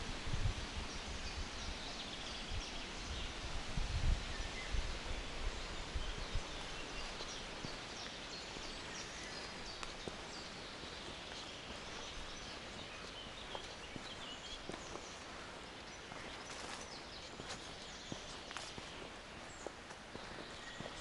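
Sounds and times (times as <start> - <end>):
low wind rumble: 0.0 - 21.0
small birds chirping and trilling: 0.0 - 21.0
soft footstep clicks: 7.0 - 21.0.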